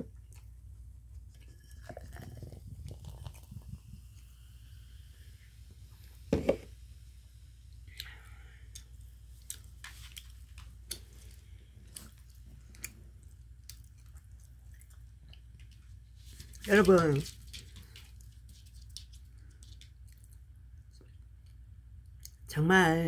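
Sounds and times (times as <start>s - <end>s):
person chewing: 7.9s - 15.8s.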